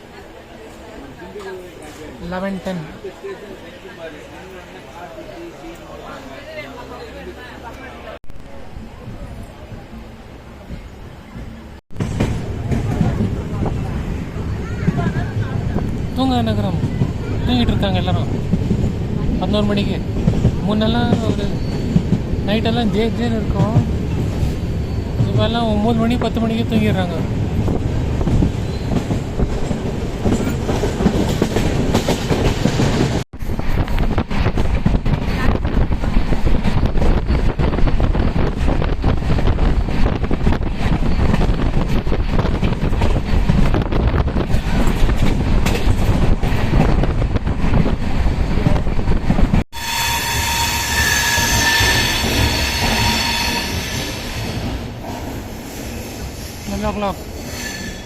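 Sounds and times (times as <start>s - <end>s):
wind buffeting: 8.8s - 57.4s
train wheels clattering on rails: 10.7s - 13.8s, 27.6s - 49.6s
train wheels squealing: 21.4s - 22.1s, 24.4s - 25.3s, 28.6s - 29.1s, 49.8s - 54.8s, 57.4s - 58.0s.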